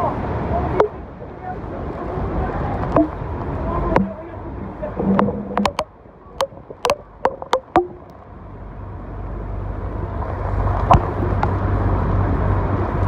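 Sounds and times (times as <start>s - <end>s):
boat engine rumbling: 0.0s - 13.0s
sharp knocks: 5.0s - 8.0s.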